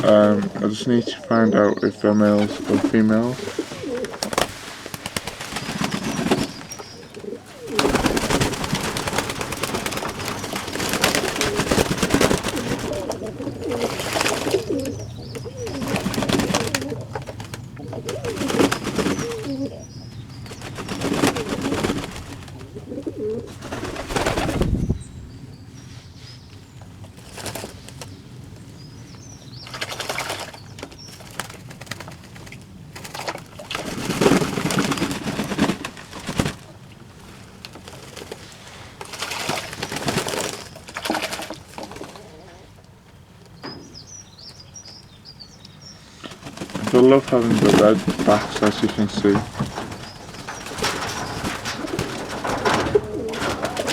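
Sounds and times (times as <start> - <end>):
doves cooing: 0.0 - 53.9
loud rustling: 2.2 - 19.8, 46.3 - 53.9.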